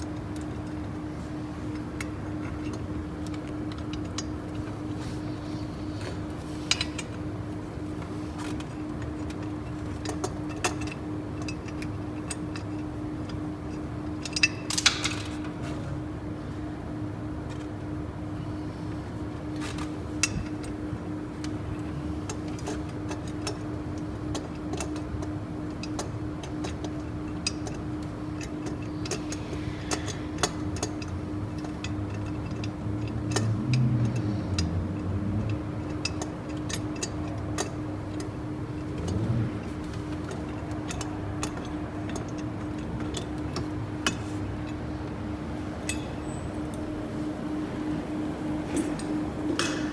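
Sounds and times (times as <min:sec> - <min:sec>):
metal tools clicking on engine parts: 0:08.4 - 0:15.7, 0:21.4 - 0:47.0.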